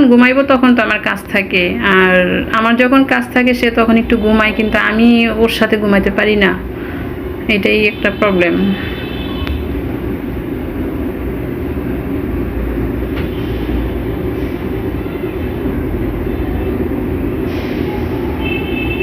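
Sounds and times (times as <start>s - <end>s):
steady low rumbling: 3.4s - 18.4s.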